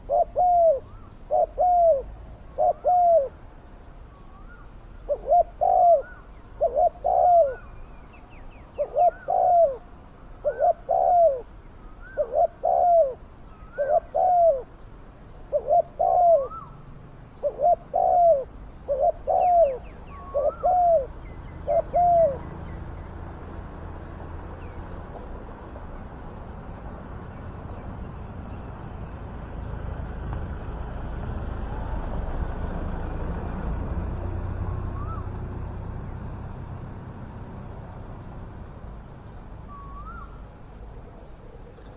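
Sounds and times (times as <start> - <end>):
doves cooing: 0.0 - 3.4, 4.4 - 7.8, 8.8 - 14.8, 15.5 - 16.8, 17.4 - 22.7, 31.1 - 36.7, 39.6 - 41.9.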